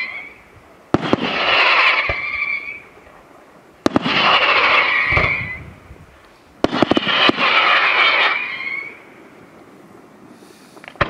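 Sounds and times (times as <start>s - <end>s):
fireworks whistling hiss: 0.0s - 3.1s, 3.8s - 9.6s, 10.2s - 11.0s
fireworks bangs: 0.0s - 9.2s, 10.8s - 11.0s.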